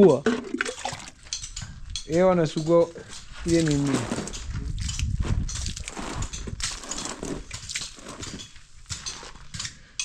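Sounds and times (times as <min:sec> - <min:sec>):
scraping and rubbing: 0:02.6 - 0:09.5.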